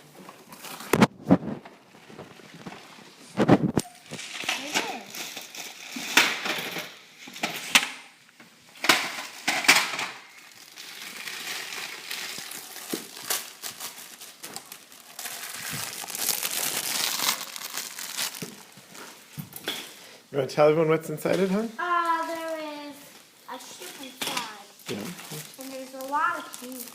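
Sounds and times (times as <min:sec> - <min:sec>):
wrapping paper crinkling: 0:00.0 - 0:06.2, 0:10.3 - 0:19.4, 0:24.7 - 0:26.9.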